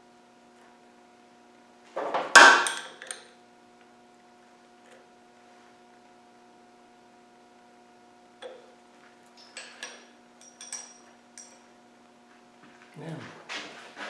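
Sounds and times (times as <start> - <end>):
electrical hum: 0.0 - 14.0
metallic tool clinks: 9.6 - 11.6.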